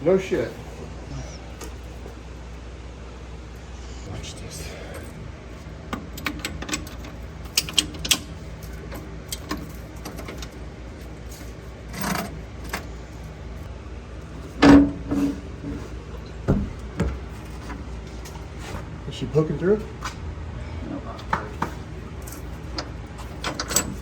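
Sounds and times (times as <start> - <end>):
low hum: 0.0 - 24.0
metal tools clinking and rattling: 5.9 - 12.9, 22.2 - 24.0.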